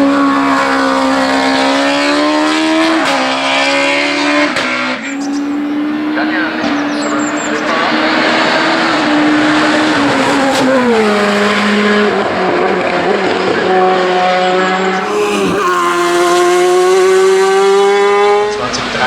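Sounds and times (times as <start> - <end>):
race car engine revving: 4.9 - 19.0.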